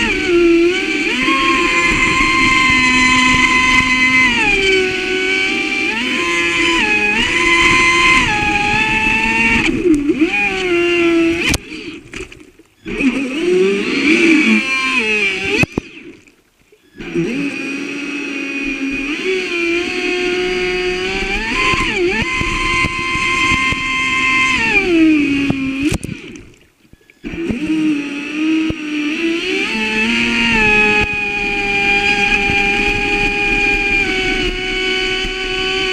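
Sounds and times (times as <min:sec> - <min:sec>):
electric boat motor whining: 0:00.0 - 0:35.9.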